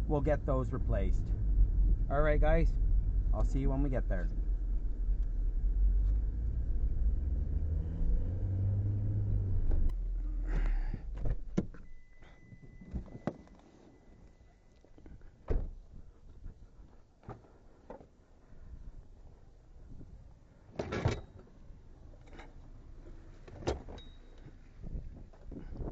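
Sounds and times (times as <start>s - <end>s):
car engine rumble: 0.0s - 13.6s.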